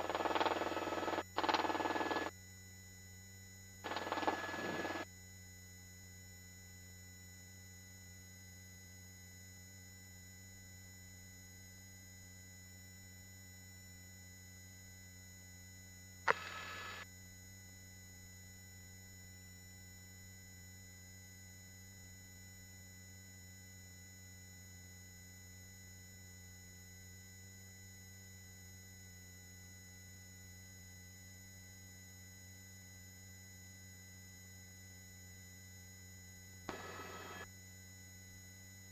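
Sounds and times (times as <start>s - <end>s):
intercom hum of level tones: 0.0s - 2.3s, 3.9s - 5.0s, 36.7s - 37.4s.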